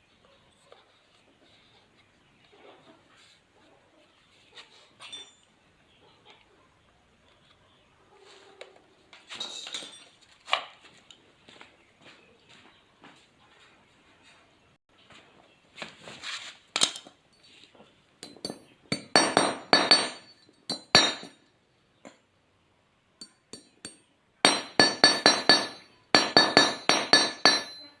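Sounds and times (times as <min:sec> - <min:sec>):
small tool tapping on metal: 0:18.2 - 0:21.3, 0:23.2 - 0:28.0.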